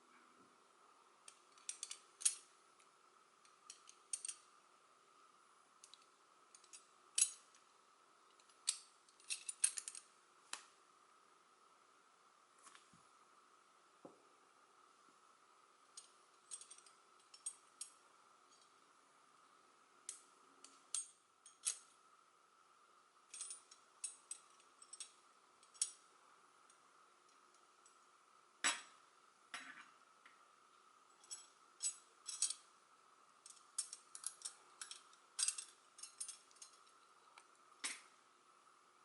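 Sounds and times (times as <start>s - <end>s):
faint steady hum: 0.0s - 39.0s
metal puzzle pieces clinking: 1.3s - 2.5s, 3.6s - 4.4s, 31.2s - 32.6s, 33.4s - 38.0s.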